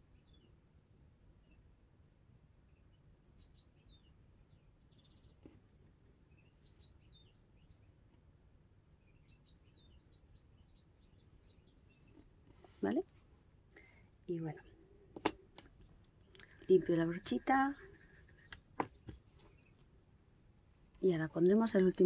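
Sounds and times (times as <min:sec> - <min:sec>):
faint high bird chirps: 0:00.0 - 0:00.7, 0:02.6 - 0:05.6, 0:06.2 - 0:08.0, 0:09.0 - 0:13.1
low background hum: 0:00.0 - 0:22.0.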